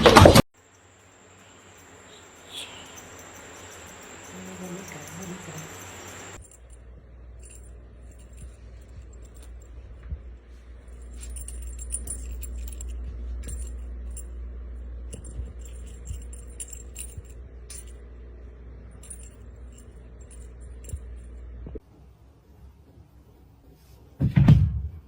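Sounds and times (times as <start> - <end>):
small metal jingling: 0.6 - 21.6
steady low rumble: 4.9 - 21.8.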